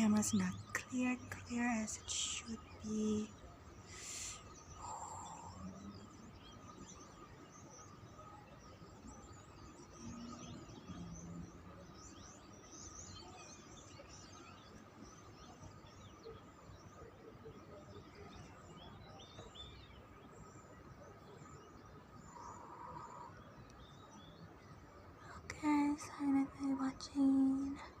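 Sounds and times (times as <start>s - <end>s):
faint steady tone: 0.0s - 28.0s
small birds chirping: 0.0s - 28.0s.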